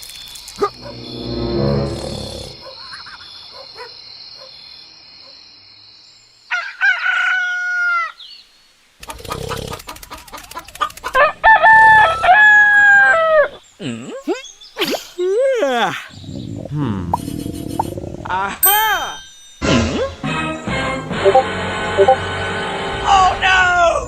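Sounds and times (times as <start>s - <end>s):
rooster crowing: 6.5s - 8.2s, 11.2s - 13.5s.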